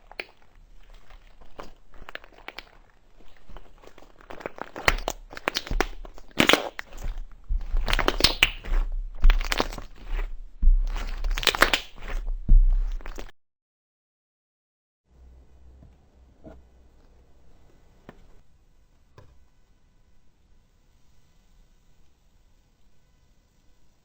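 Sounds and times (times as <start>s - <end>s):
crunchy slime squeezed by hand: 0.0s - 13.3s.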